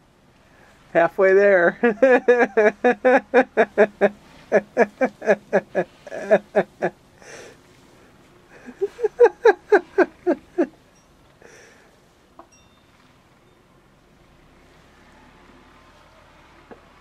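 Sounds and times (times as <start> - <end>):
person laughing hard: 1.7 - 7.5, 8.5 - 10.8.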